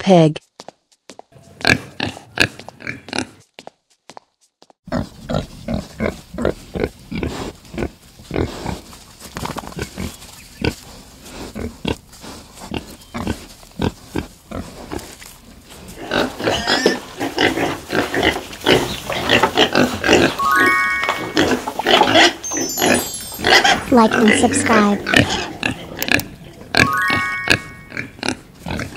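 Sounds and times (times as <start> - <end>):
pigs grunting: 1.4 - 3.4, 4.9 - 8.9, 9.8 - 15.2, 15.8 - 20.4, 23.4 - 26.8, 27.9 - 28.9.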